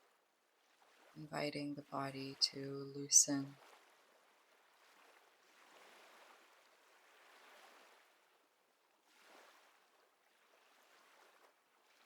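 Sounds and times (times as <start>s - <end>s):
ocean waves washing: 0.9s - 3.7s.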